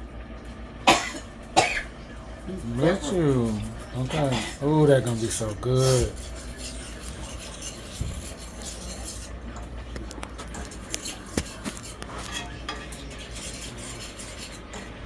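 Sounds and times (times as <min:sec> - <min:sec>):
utensil clinking against pot: 0:02.5 - 0:15.0
metal utensil scraping in a pot: 0:02.6 - 0:15.0.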